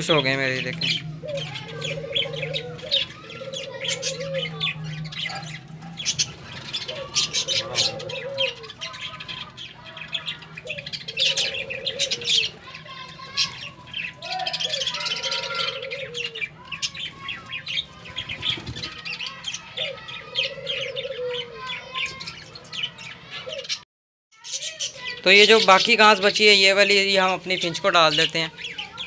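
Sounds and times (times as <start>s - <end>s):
dove cooing: 0.0s - 9.5s, 10.6s - 13.0s, 14.1s - 17.3s, 18.0s - 22.0s, 23.2s - 23.8s
budgerigars chirping: 0.0s - 23.8s.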